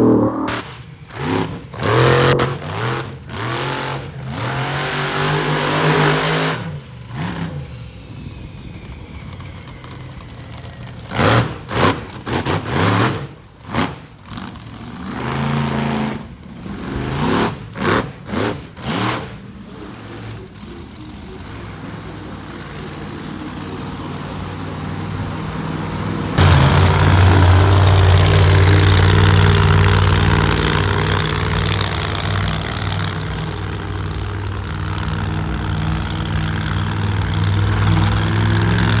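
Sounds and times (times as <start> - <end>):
truck engine revving hard: 0.0 - 39.0
loud sharp bursts: 26.4 - 34.5.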